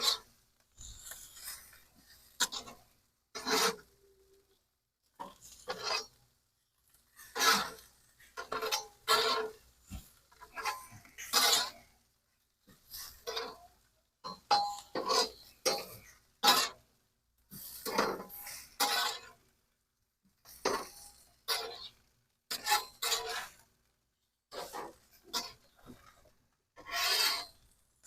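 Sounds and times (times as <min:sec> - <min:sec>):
spatula scraping grill grates: 0:00.0 - 0:04.1, 0:05.2 - 0:06.2, 0:07.1 - 0:11.8, 0:14.3 - 0:16.8, 0:17.5 - 0:19.4, 0:20.5 - 0:23.7, 0:24.5 - 0:27.8.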